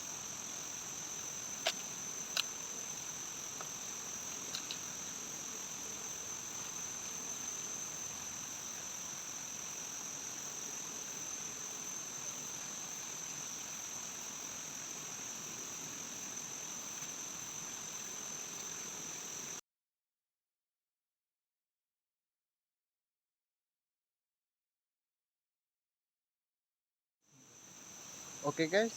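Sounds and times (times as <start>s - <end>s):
shrill insect chorus: 0.0s - 19.6s, 27.3s - 28.9s
soft forest hiss: 0.0s - 19.6s, 27.3s - 28.9s.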